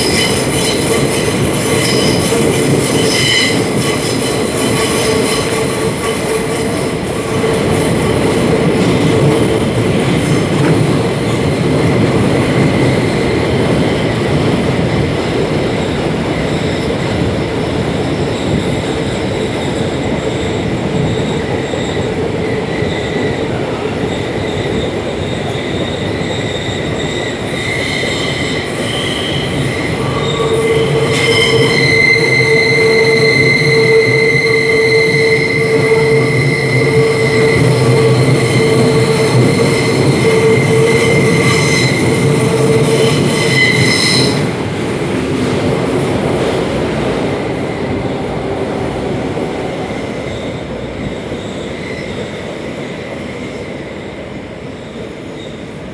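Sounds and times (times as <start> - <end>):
wheel squeal: 0.0 - 14.5, 24.1 - 44.5, 47.0 - 52.5
train rolling rumble: 0.0 - 55.9.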